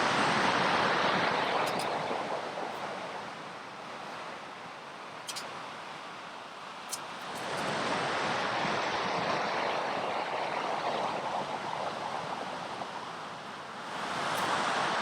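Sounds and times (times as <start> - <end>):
ocean surf washing: 0.0 - 15.0
small click: 5.3 - 5.5.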